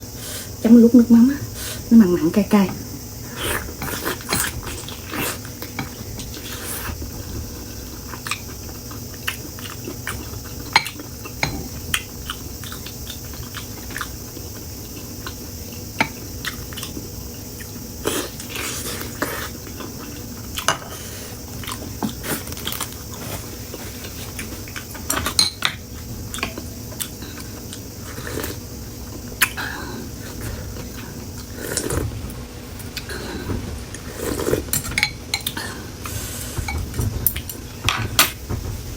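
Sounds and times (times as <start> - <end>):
person chewing: 3.3 - 34.7
utensils clinking against bowl: 10.7 - 11.8, 25.0 - 25.8, 34.5 - 35.6.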